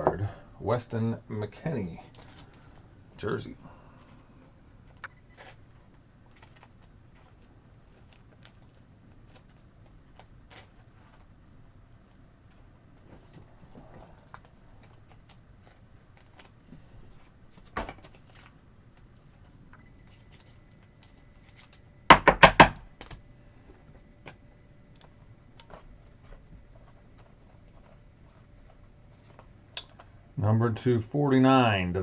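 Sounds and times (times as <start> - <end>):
trading cards flipping: 4.8 - 21.9
loud knocks: 22.1 - 22.8.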